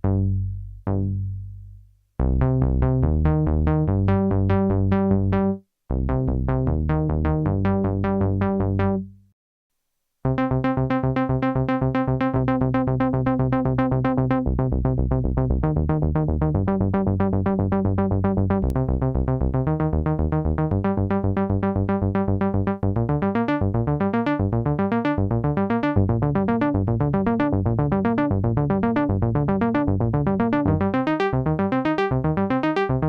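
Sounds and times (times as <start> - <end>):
synth bass line: 0.0 - 9.2, 10.3 - 33.0
synthesizer sequenced pattern: 10.3 - 33.0.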